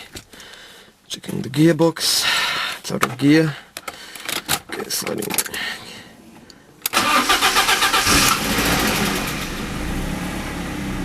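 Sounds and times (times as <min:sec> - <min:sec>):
starter motor cranking: 0:06.9 - 0:09.5
car engine idling: 0:07.0 - 0:11.0.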